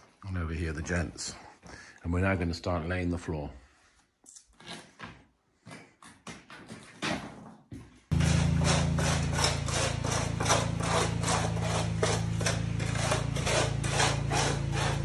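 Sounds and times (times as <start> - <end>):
concrete mixer motor hum: 8.1 - 15.0.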